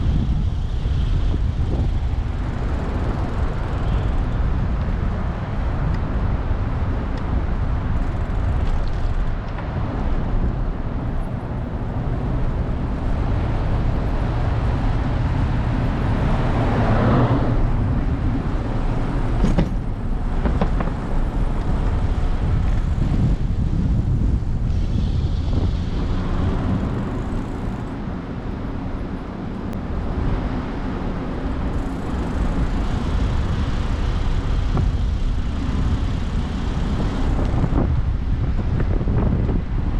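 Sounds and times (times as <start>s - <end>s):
road traffic rumble: 0.0s - 39.9s
vehicle passing: 10.9s - 37.9s.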